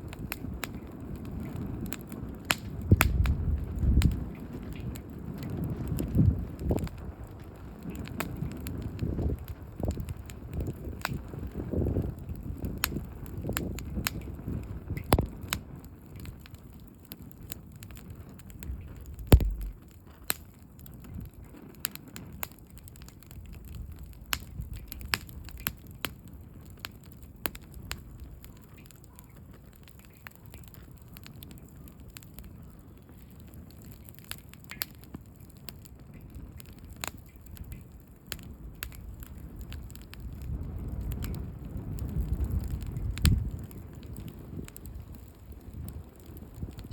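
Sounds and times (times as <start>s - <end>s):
campfire crackling: 0.0s - 46.9s
low rumble: 19.3s - 19.8s
loud knock: 19.4s - 19.8s.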